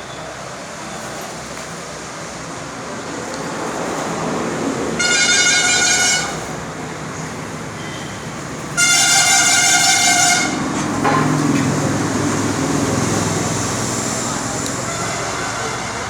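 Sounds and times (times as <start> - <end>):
engine rumble: 0.0 - 16.0
vehicle horn blowing: 5.0 - 6.7, 7.8 - 11.4, 14.8 - 16.0.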